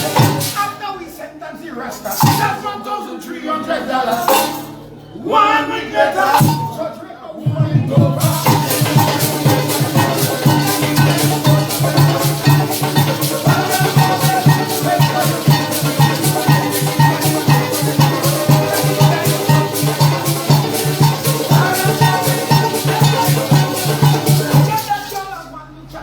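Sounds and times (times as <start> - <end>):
band playing melody: 0.0 - 0.6, 8.1 - 25.4
shakers keeping quick beat: 0.0 - 0.8, 2.1 - 2.7, 4.2 - 4.7, 7.5 - 25.5.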